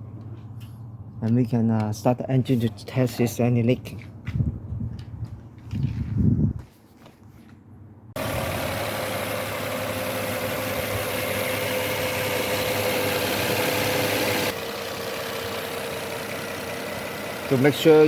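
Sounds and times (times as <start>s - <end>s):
car engine idling: 8.2s - 18.0s.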